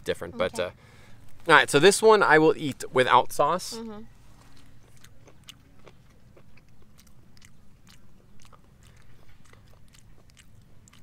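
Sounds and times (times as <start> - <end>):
wet mouth clicks chewing: 4.5 - 11.0.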